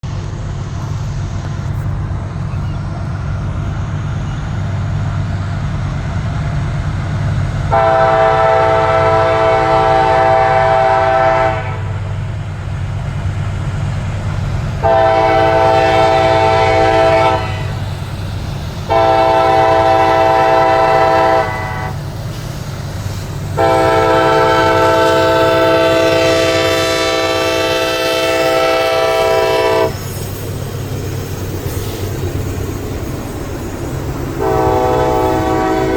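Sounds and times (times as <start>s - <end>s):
low rumble of train: 0.0s - 35.9s
train horn blasts: 7.7s - 12.0s, 14.8s - 17.8s, 18.9s - 22.0s, 23.6s - 30.0s, 34.4s - 35.9s.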